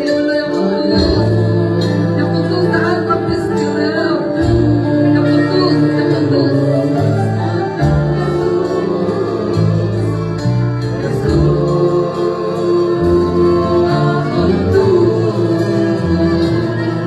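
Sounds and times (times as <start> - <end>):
choir singing a hymn: 0.0 - 17.0
instrumental backing with bass line: 0.0 - 17.0.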